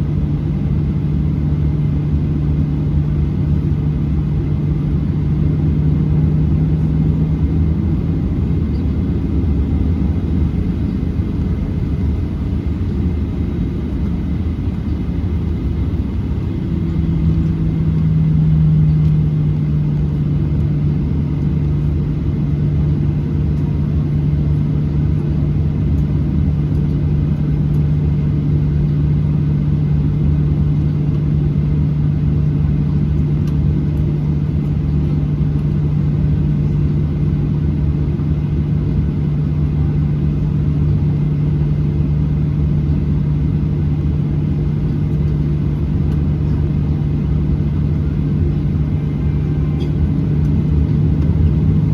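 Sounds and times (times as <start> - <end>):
airplane cabin engine rumble: 0.0 - 51.9
low hum: 1.9 - 20.9, 43.4 - 51.9.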